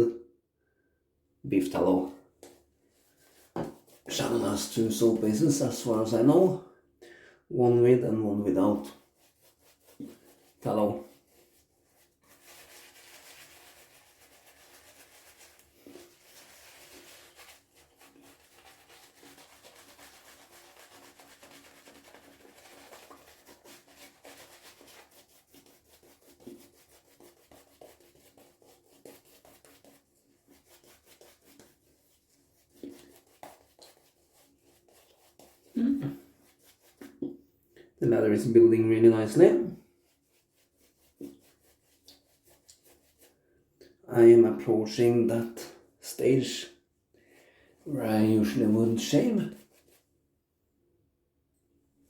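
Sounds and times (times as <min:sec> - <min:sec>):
shaving brush rubbing lather: 0:02.4 - 0:06.6, 0:08.2 - 0:37.2, 0:38.2 - 0:43.4, 0:47.9 - 0:50.1.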